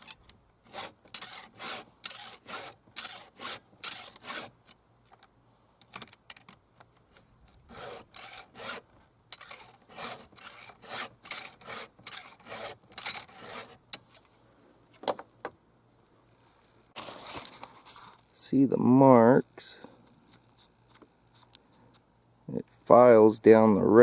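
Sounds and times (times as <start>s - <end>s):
file rasping on saw chain: 0.0s - 4.6s, 7.7s - 13.8s.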